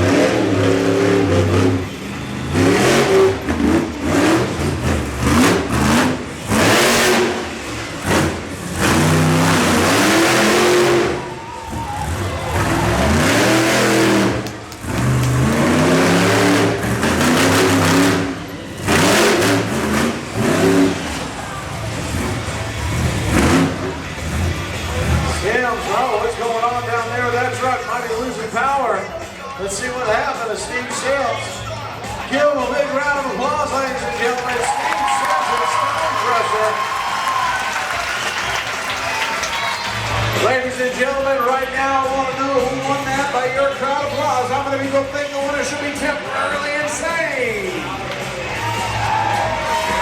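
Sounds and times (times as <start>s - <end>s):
truck engine revving hard: 0.0s - 27.9s, 34.0s - 40.8s.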